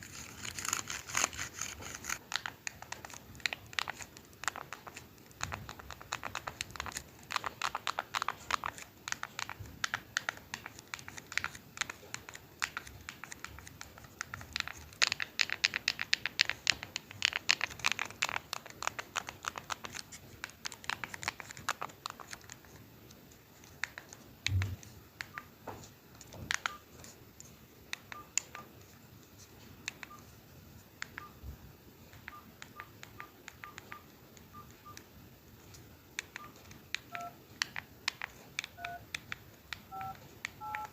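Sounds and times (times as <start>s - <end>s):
crinkling and tapping on plastic: 1.8s - 28.6s
phone keypad beeps: 26.6s - 26.9s, 28.1s - 28.7s, 31.1s - 31.4s, 32.2s - 35.0s, 36.3s - 37.4s, 38.7s - 39.0s, 39.9s - 40.9s.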